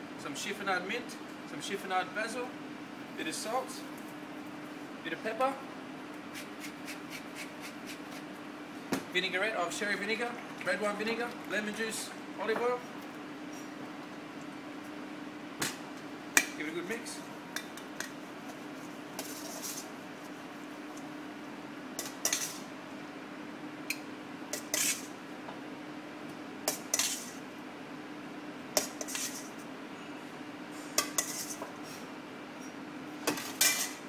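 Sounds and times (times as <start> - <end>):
utensils clinking against bowl: 33.3 - 34.0.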